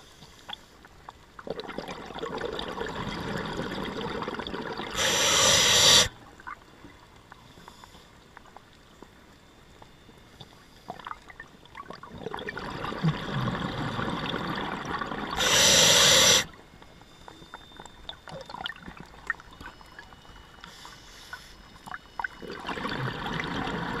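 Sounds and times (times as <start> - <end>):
regulator breathing rush: 4.9 - 6.1, 15.4 - 16.5.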